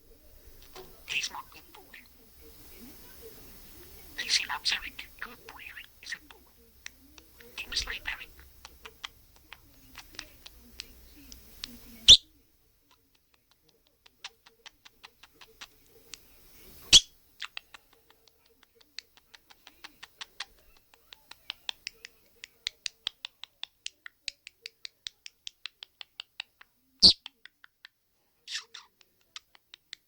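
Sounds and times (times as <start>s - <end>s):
budgerigar clicking: 0.6s - 30.0s
budgerigar chirp: 1.0s - 2.1s, 4.2s - 6.4s, 7.3s - 10.6s, 12.0s - 12.3s, 16.9s - 17.7s, 27.0s - 27.3s, 28.5s - 29.5s.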